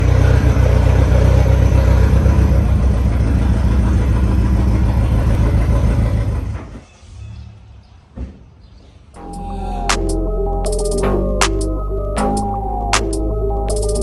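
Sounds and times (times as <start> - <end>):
vehicle engine running: 0.0 - 6.8.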